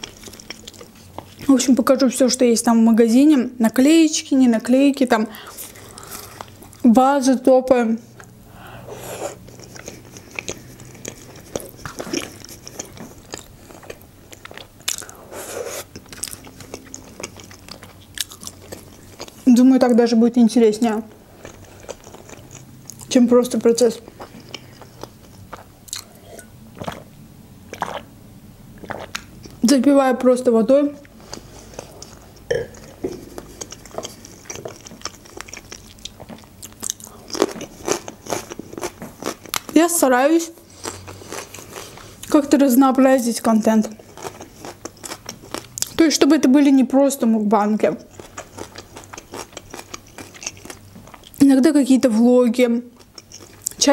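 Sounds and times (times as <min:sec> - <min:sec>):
close chewing with wet mouth clicks: 0:00.0 - 0:01.5, 0:09.3 - 0:19.5, 0:21.3 - 0:27.1, 0:27.7 - 0:28.1, 0:28.8 - 0:29.6, 0:31.0 - 0:39.8, 0:43.8 - 0:46.0, 0:47.9 - 0:51.4, 0:53.0 - 0:53.9.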